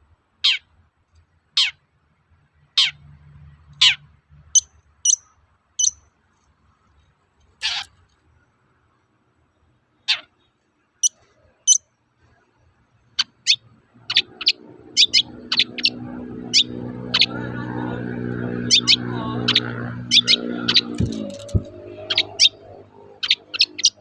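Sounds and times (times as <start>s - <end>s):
shrike sharp calls: 13.2s - 24.0s
steady low hum: 13.9s - 24.0s.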